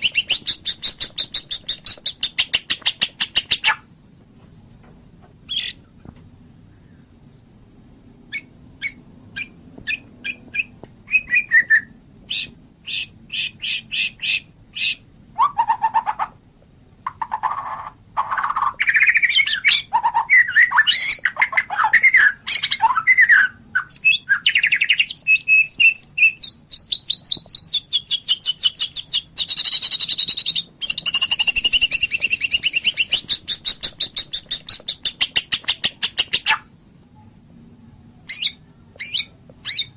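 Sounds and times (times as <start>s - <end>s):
bird singing: 0.0s - 4.2s, 5.5s - 5.9s, 8.3s - 16.3s, 17.0s - 39.9s
bird low whistles: 8.3s - 16.0s, 21.8s - 36.7s, 38.3s - 39.9s.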